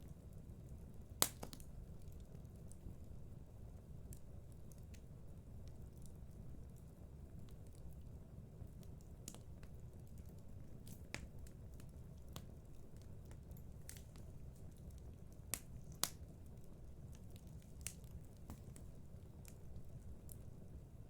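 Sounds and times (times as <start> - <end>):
fire crackling: 0.0 - 21.0
low rumble of flames: 0.0 - 21.0
sharp pops of fire: 1.2 - 1.7, 15.5 - 16.3.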